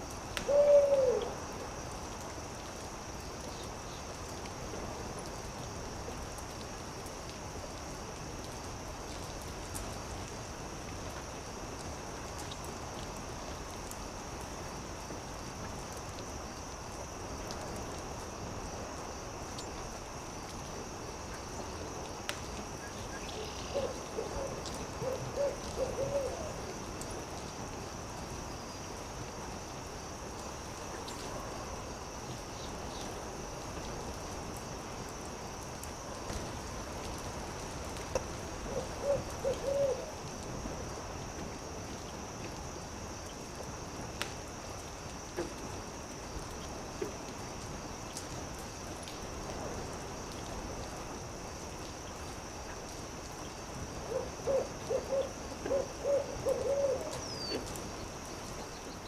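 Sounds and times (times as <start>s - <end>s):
owl hooting: 0.4s - 1.4s, 23.3s - 26.5s, 38.7s - 40.1s, 54.1s - 57.6s
campfire crackling: 1.2s - 58.7s.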